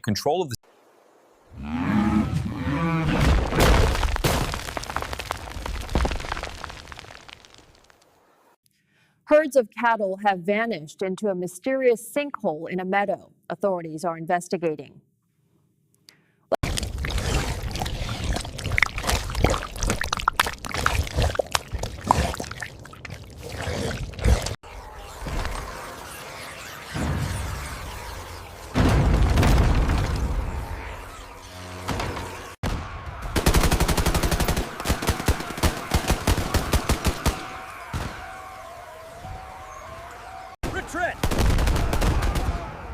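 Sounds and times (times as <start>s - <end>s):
rushing crackling noise: 4.1s - 8.3s
automatic gunfire: 33.3s - 37.5s.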